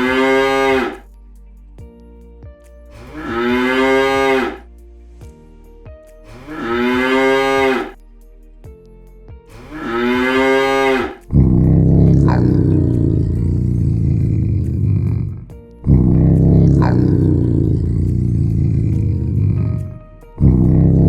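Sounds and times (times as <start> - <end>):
large animal low calls: 0.0 - 1.0, 6.3 - 8.0, 9.6 - 19.8
loud rough animal sound: 0.0 - 1.0, 3.0 - 4.6, 6.3 - 8.0, 9.5 - 21.0.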